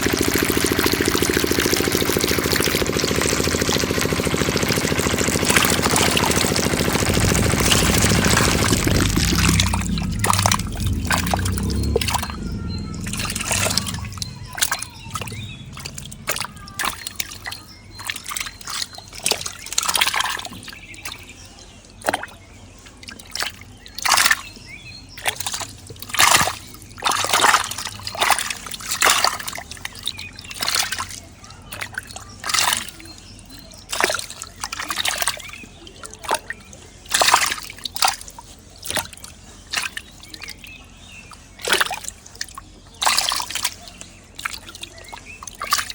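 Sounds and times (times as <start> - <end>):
small diesel engine running: 0.0 - 17.8
water splashing and sloshing: 0.0 - 45.9.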